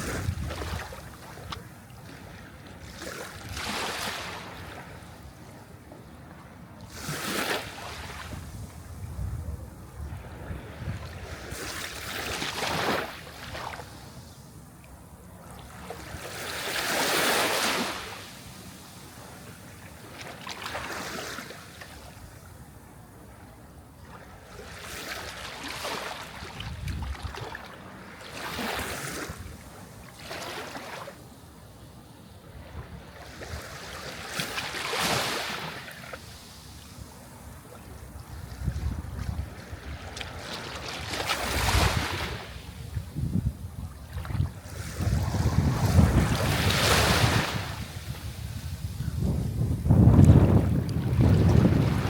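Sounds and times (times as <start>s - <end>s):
sea waves breaking: 10.2s - 14.2s, 15.8s - 21.9s, 33.2s - 42.8s, 44.1s - 52.0s.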